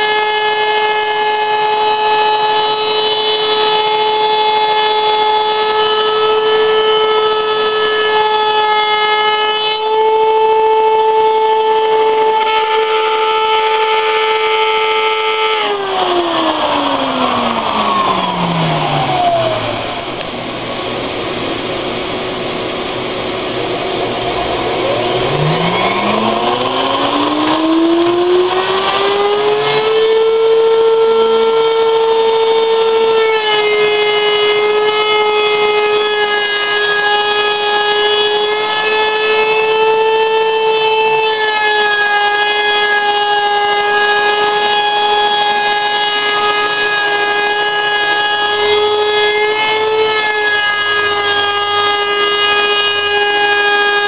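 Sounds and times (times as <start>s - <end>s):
router motor whining: 0.0s - 54.0s
rough noise: 15.6s - 32.1s.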